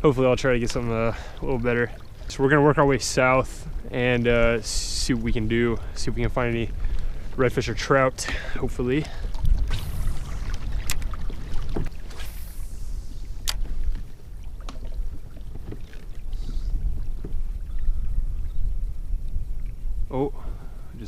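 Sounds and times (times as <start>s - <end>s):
steady low rumble: 0.0s - 15.4s
clicks and knocks against hull: 10.8s - 12.0s, 13.4s - 16.2s.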